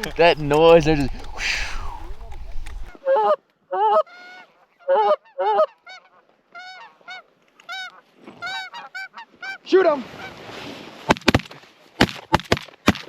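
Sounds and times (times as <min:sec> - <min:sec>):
geese honking: 0:03.8 - 0:09.7.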